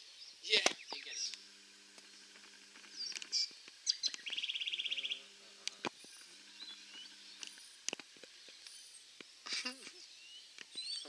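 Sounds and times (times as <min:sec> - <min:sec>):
birds chirping: 0:00.0 - 0:11.0
faint low hum: 0:00.8 - 0:11.0
bird trill: 0:02.0 - 0:05.3, 0:06.0 - 0:09.1, 0:10.0 - 0:11.0.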